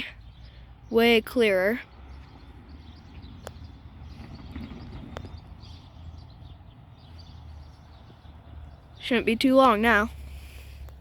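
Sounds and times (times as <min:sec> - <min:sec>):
wind rumble on microphone: 0:01.9 - 0:09.1.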